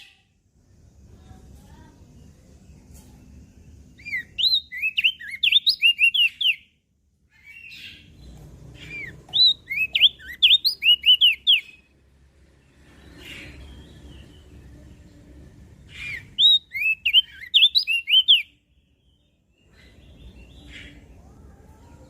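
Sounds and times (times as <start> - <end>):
bird singing high chirps: 1.7 - 12.0, 12.6 - 22.0.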